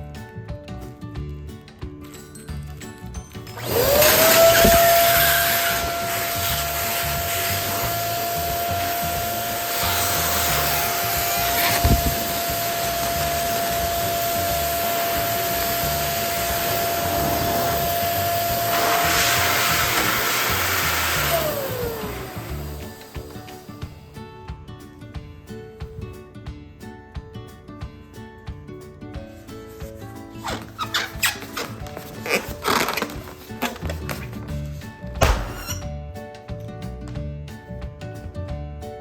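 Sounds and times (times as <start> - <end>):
electric balloon pump whining: 3.4 - 23.9, 30.5 - 34.4
rush of air: 16.3 - 22.6.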